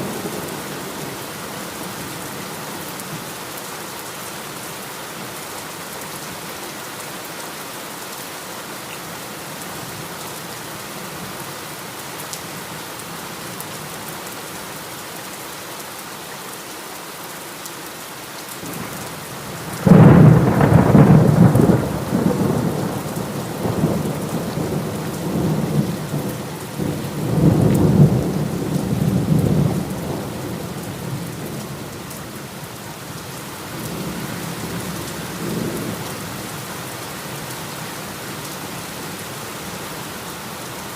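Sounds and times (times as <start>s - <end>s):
heavy rain: 0.0s - 40.9s.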